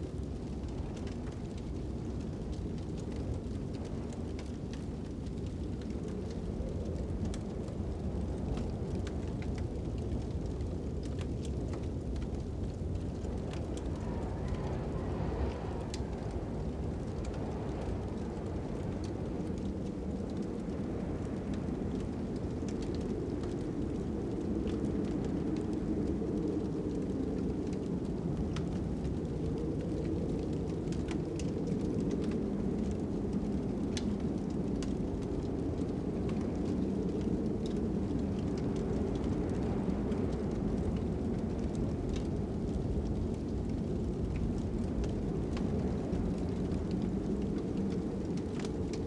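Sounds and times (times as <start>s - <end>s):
faint whistling wind: 0.0s - 49.0s
fire crackling and popping: 0.0s - 49.0s
low wind rumble: 0.0s - 49.0s
wind rushing: 13.3s - 21.5s.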